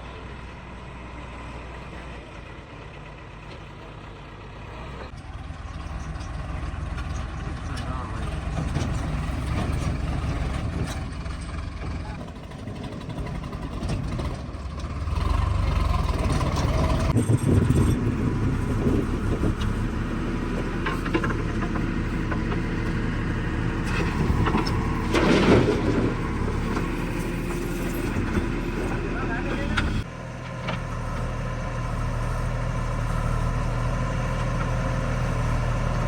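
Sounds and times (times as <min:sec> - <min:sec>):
diesel engine of backhoe loader: 0:00.0 - 0:36.0
loud clatter: 0:23.8 - 0:30.0.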